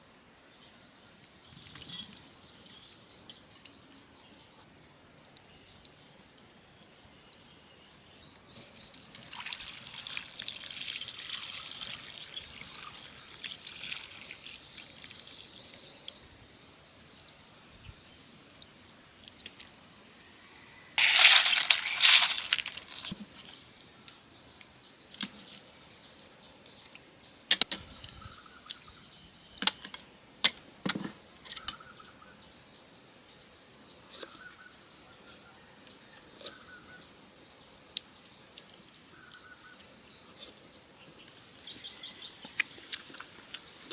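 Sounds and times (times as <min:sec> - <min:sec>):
water trickling and pouring: 0:01.5 - 0:02.4, 0:08.8 - 0:15.7, 0:21.0 - 0:23.2.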